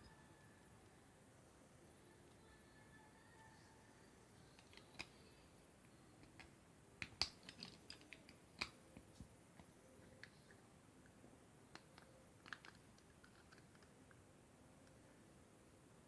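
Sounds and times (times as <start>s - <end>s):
plastic pieces clicking: 4.6s - 5.2s, 6.2s - 8.8s, 11.7s - 14.2s.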